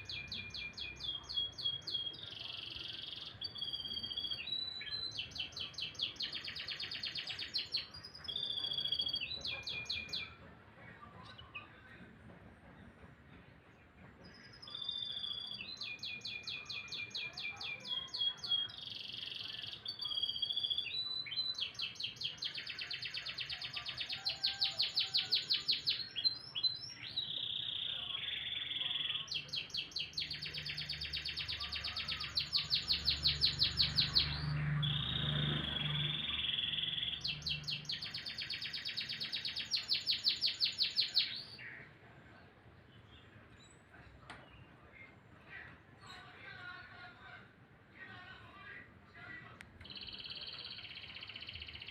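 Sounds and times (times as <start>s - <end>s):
canary singing trills: 0.0s - 10.4s, 14.5s - 41.8s, 49.8s - 51.9s.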